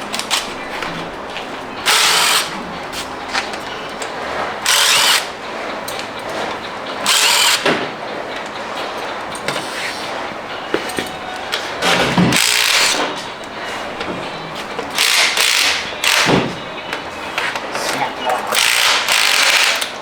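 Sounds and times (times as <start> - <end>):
handheld power tool bursts: 1.9 - 2.5, 4.6 - 5.3, 7.0 - 7.8, 11.9 - 13.1, 14.9 - 16.6, 18.6 - 20.0.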